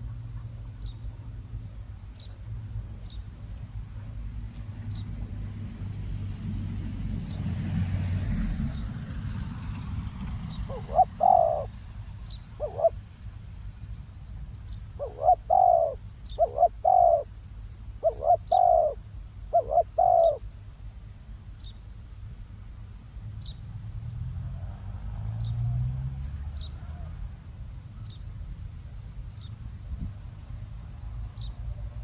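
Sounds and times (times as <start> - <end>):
dove cooing: 10.5 - 11.8, 12.5 - 13.0, 15.0 - 17.3, 18.0 - 20.5.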